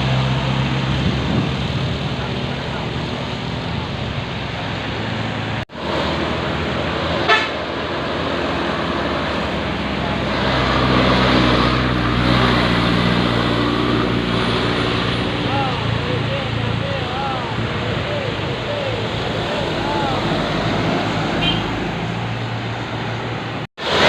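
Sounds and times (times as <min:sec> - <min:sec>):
diesel truck engine under load: 0:00.0 - 0:24.0
truck horn toot: 0:07.2 - 0:07.7, 0:21.3 - 0:22.0.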